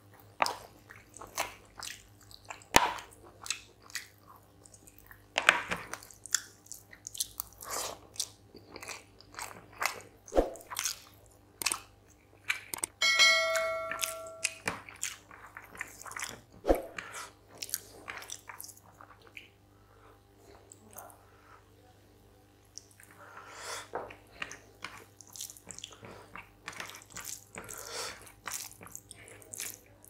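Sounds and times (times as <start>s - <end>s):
person chewing wetly: 0.0s - 12.9s, 13.9s - 19.6s, 22.7s - 30.0s
short chime: 13.0s - 14.6s.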